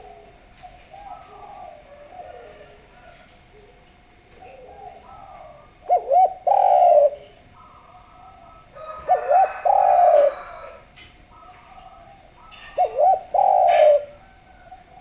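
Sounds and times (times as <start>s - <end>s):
dove cooing: 0.0s - 15.0s.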